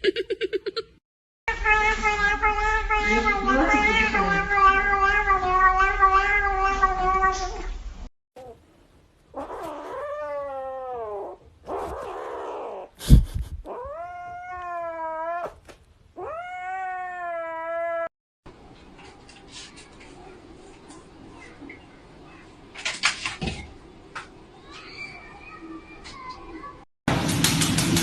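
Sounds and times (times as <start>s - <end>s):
cats yowling and meowing: 1.5s - 7.7s, 9.4s - 12.9s, 13.7s - 15.6s, 16.2s - 18.1s, 24.6s - 26.4s.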